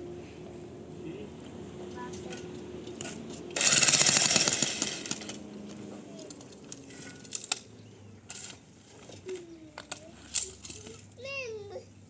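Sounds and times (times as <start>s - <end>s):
hammer drill hammering: 3.6s - 5.3s.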